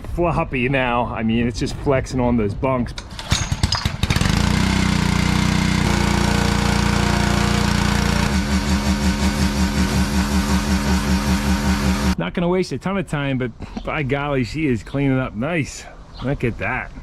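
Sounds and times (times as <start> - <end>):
small engine starting and running: 3.2 - 12.2.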